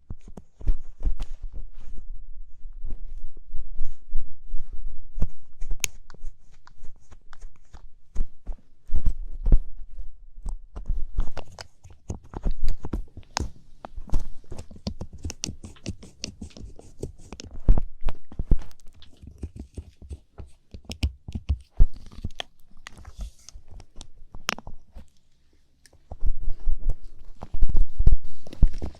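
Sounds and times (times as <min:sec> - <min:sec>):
ear pick scratching in ear: 0:11.4 - 0:17.7.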